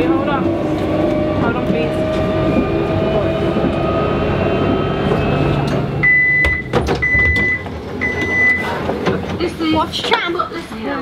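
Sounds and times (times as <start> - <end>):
tram motor whine: 0.0 - 9.9
high warning beep: 6.0 - 8.7.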